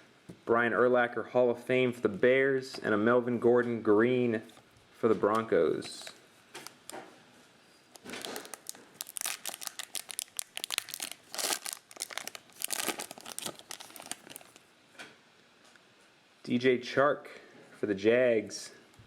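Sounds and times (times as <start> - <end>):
plastic wrappers tearing and crinkling: 6.6 - 7.0, 7.9 - 14.6.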